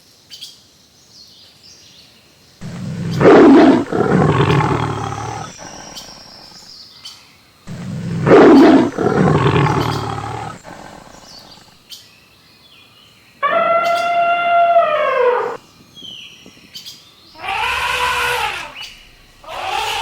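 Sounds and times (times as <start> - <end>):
birds chirping faintly: 0.3 - 20.0
large animal roaring: 2.6 - 6.6, 7.7 - 11.7, 17.4 - 20.0
animal call falling in pitch: 13.4 - 15.6.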